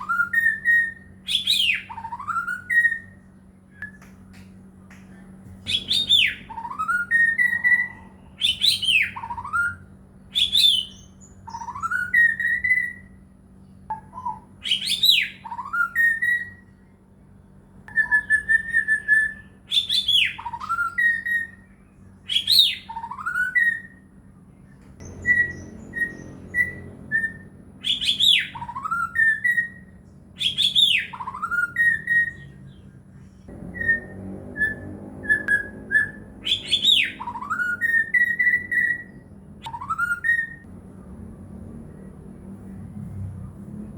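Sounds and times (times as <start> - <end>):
bird singing whistled phrases: 0.0 - 4.1, 5.7 - 13.2, 13.9 - 16.8, 17.9 - 24.1, 25.0 - 32.8, 33.6 - 40.7
steady low hum: 0.0 - 43.9.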